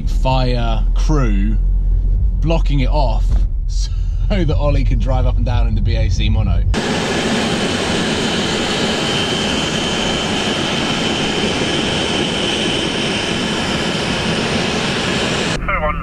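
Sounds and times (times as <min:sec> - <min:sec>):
jet engines roaring and whining: 0:04.8 - 0:16.0.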